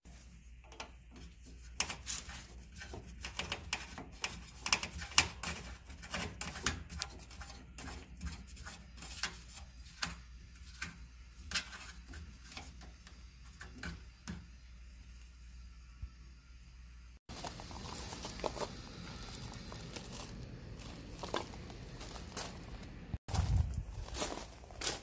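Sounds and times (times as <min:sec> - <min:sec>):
metallic clicks and scrapes: 0:00.5 - 0:14.4.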